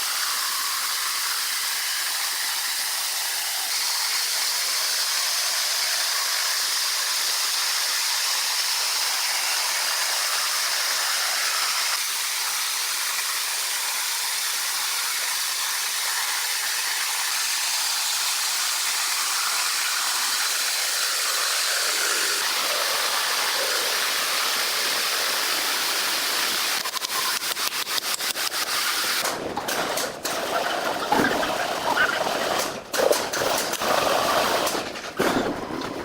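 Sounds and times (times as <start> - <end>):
steady rushing hiss: 0.0 - 31.0
rapid sharp clicks: 26.5 - 36.0.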